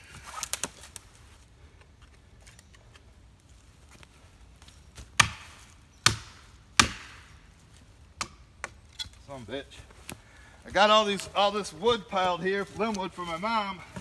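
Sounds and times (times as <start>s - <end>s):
maul striking a metal wedge: 5.2s - 7.3s.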